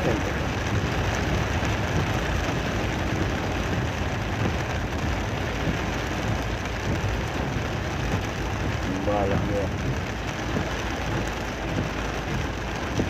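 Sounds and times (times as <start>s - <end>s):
heavy rain pouring: 0.0s - 13.0s
vehicle driving road noise: 0.0s - 13.0s.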